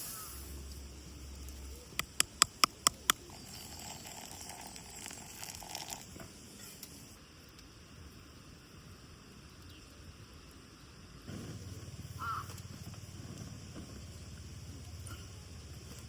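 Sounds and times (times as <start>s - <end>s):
faint background hiss: 0.0s - 16.0s
sharp clicks: 2.0s - 3.3s.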